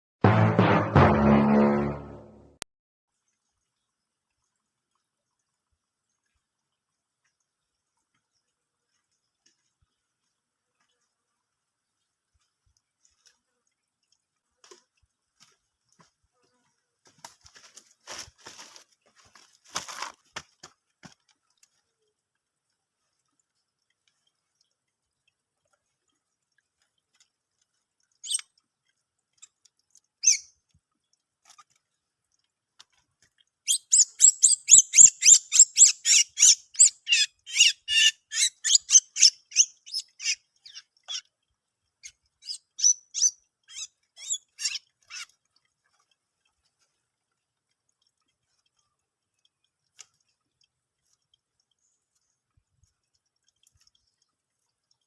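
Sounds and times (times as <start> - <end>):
bird calling sharp chirps: 30.2 - 30.5, 33.7 - 40.8, 42.4 - 45.2.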